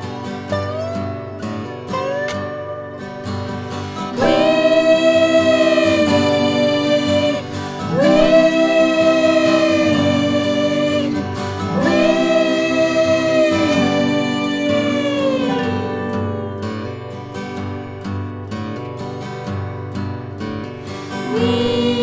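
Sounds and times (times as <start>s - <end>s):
wordless sung notes: 4.0s - 17.8s, 21.0s - 22.0s.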